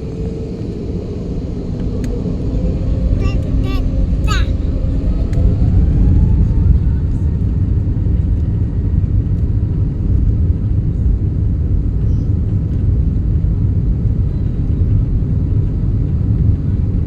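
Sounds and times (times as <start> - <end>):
jet engines rumbling: 0.0 - 10.9.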